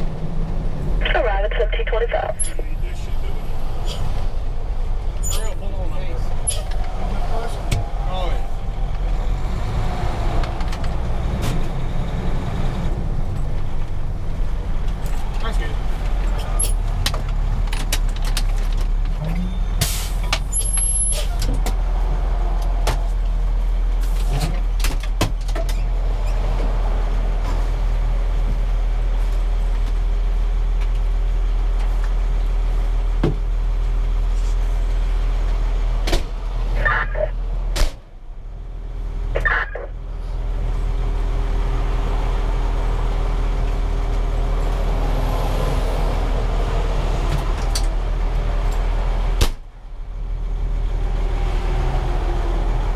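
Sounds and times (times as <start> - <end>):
diesel engine idling: 0.0 - 17.6.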